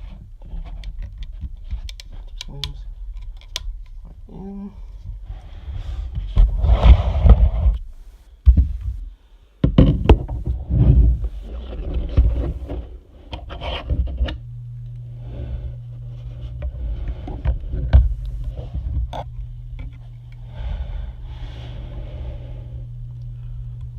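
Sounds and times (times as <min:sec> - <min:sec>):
faint low hum: 0:00.0 - 0:23.9
plastic parts scraping and rustling: 0:09.7 - 0:14.4.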